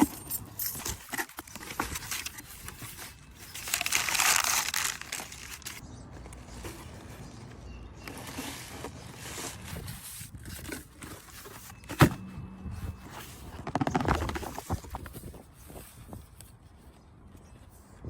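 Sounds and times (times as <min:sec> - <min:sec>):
packaging crinkling and rustling: 0:00.8 - 0:05.8, 0:13.4 - 0:15.4.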